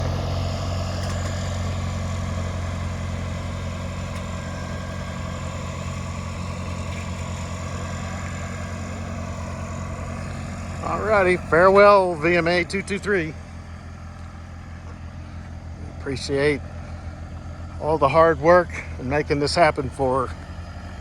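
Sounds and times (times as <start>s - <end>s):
tow tractor engine humming: 0.0s - 21.0s.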